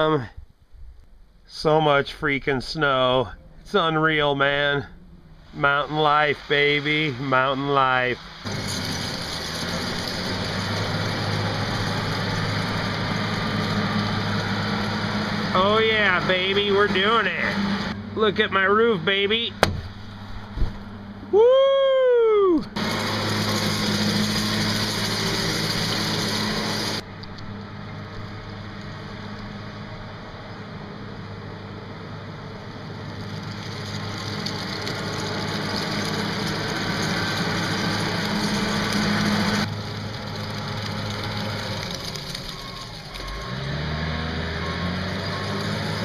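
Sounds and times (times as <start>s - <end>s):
small engine running: 8.4s - 18.0s, 22.8s - 46.0s
rising-then-falling whoop: 21.2s - 22.8s.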